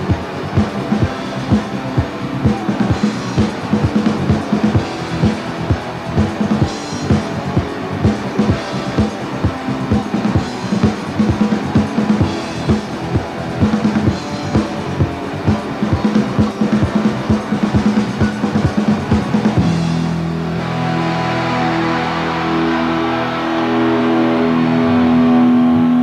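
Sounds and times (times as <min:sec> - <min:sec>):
fast drum beat: 0:00.0 - 0:20.3
held guitar chord ringing: 0:00.0 - 0:26.0
rock band playing: 0:00.0 - 0:26.0.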